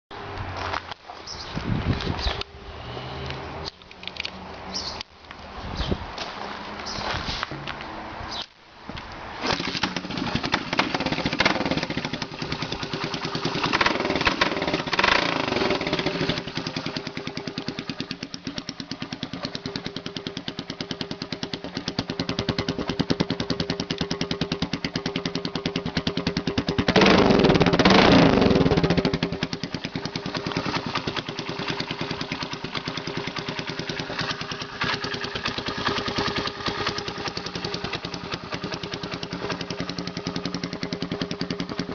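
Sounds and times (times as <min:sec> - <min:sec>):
motorcycle engine idling and revving: 0:09.3 - 0:41.9.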